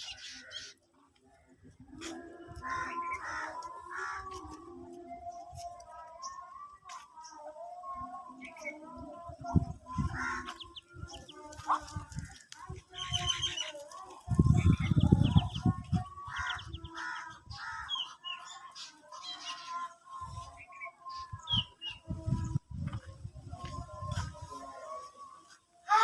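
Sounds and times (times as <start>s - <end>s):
birds chirping and calling: 0.0s - 1.0s, 1.6s - 23.0s.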